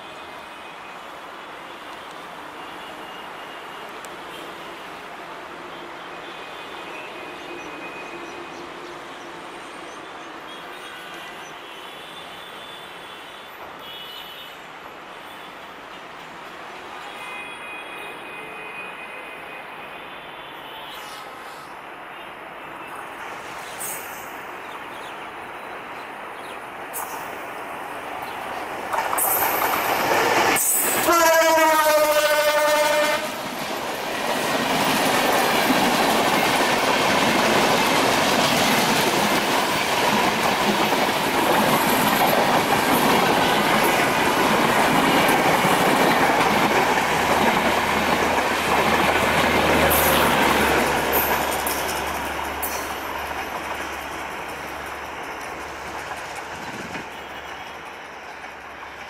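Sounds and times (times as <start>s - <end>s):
train wheels clickety-clack: 26.4s - 27.5s, 28.1s - 59.0s
locomotive horn: 30.8s - 33.4s.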